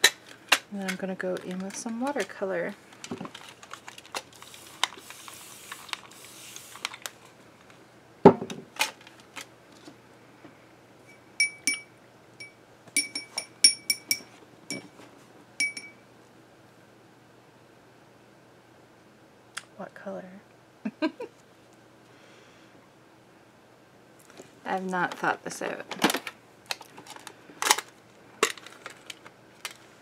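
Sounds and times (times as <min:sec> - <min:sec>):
rustling of art supplies: 0:00.0 - 0:07.8, 0:08.5 - 0:10.5, 0:24.2 - 0:30.0
object thumping down: 0:08.2 - 0:08.7
paintbrush clinking glass jar: 0:11.4 - 0:14.8, 0:15.6 - 0:16.0.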